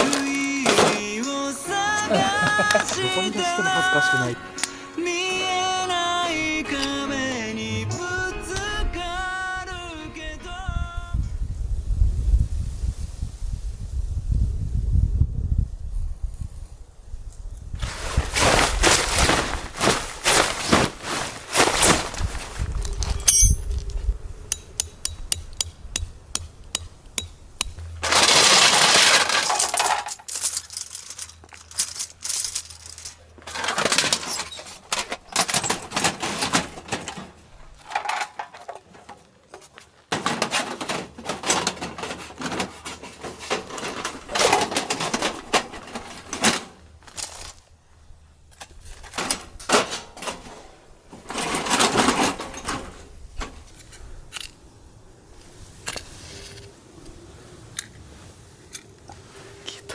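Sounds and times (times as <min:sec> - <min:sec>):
objects knocking: 0:00.0 - 0:01.5
rustling: 0:00.0 - 0:07.5, 0:17.7 - 0:54.6
light clicks and clinks: 0:22.8 - 0:27.8.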